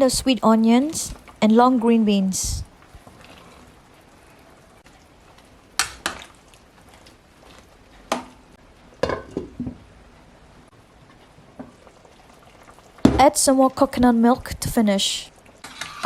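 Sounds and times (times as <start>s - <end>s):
faint hiss of simmering food: 0.0s - 16.0s
knocks and clinks on cooking pot: 9.0s - 9.8s.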